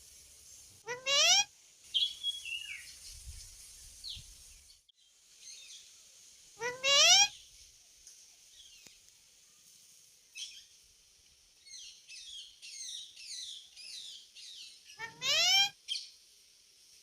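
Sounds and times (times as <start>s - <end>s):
parrot chirping: 0.9s - 2.4s, 6.6s - 7.3s, 15.0s - 15.7s.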